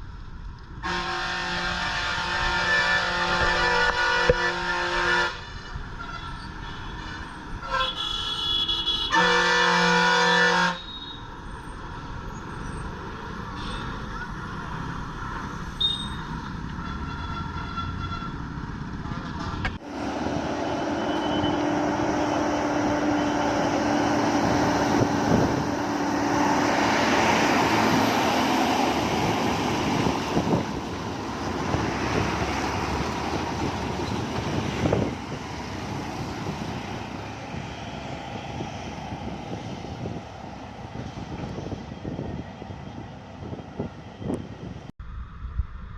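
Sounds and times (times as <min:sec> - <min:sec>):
vehicle horn blasts: 0:00.8 - 0:11.2, 0:16.8 - 0:18.4
heavy truck engine climbing: 0:10.2 - 0:45.9.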